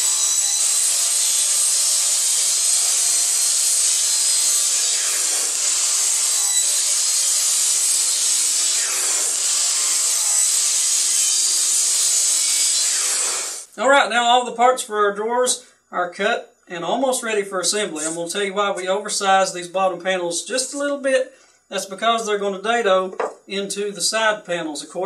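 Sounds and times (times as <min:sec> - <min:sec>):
miter saw whining: 0:00.0 - 0:13.7.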